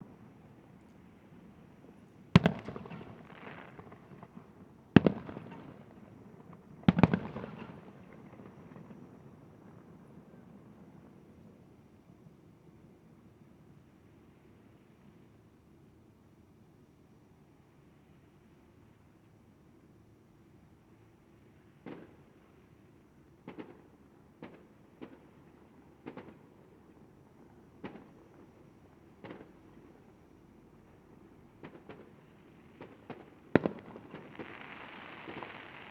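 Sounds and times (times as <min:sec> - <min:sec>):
faint fireworks bangs: 0:00.0 - 0:11.8, 0:21.4 - 0:35.9
low background noise: 0:00.0 - 0:35.9
fireworks crackle: 0:31.6 - 0:35.9
fireworks bangs: 0:32.8 - 0:35.9.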